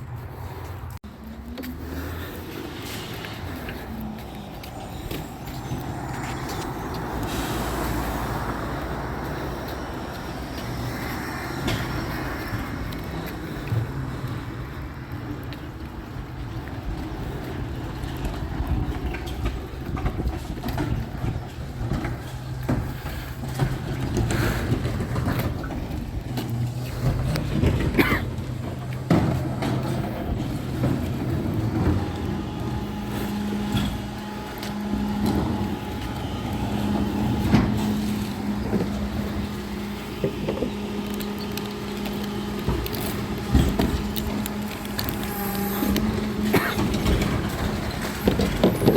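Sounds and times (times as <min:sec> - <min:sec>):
truck engine running: 0:00.0 - 0:48.9
clanks and knocks: 0:18.0 - 0:32.6, 0:45.9 - 0:48.9.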